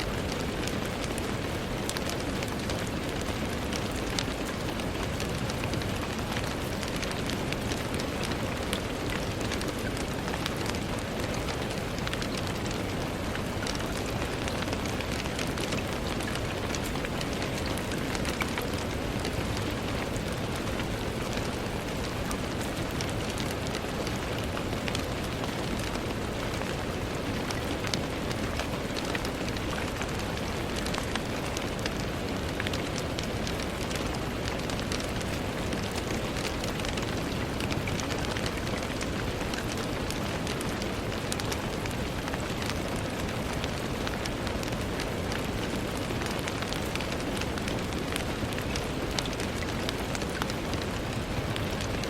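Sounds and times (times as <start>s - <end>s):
rain on a window pane: 0.0s - 52.0s.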